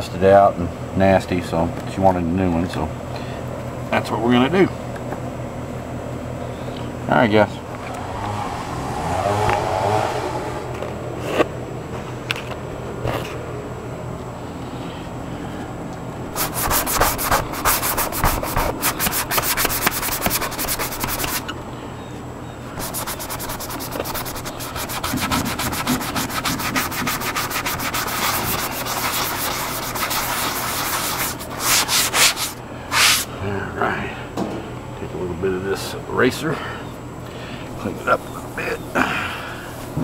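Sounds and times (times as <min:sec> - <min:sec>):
hand scrubbing a surface: 0:16.3 - 0:21.4, 0:22.8 - 0:33.3.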